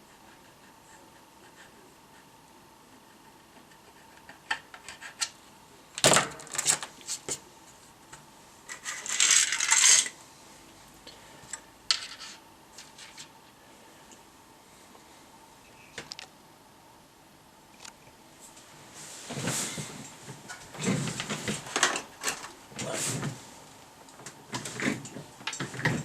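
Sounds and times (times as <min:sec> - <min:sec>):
small hard objects clattering: 0:08.7 - 0:10.1.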